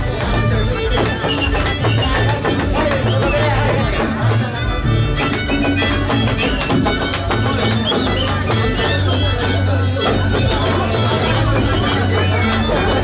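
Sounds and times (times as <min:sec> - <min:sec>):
steady bass line: 0:00.0 - 0:13.0
violin playing folk music: 0:00.0 - 0:13.0.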